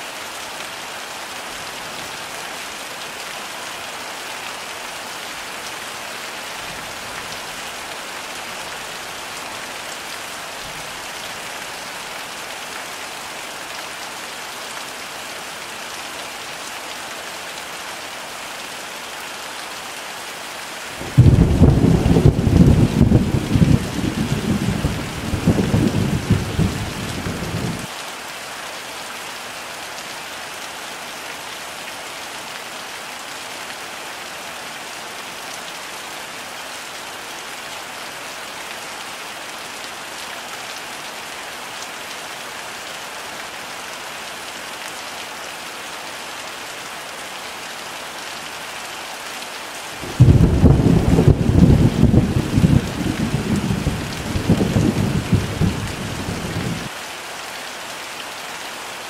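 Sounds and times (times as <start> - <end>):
heavy rain falling: 0.0 - 59.0
thunder rumble: 21.1 - 27.8, 50.1 - 56.9.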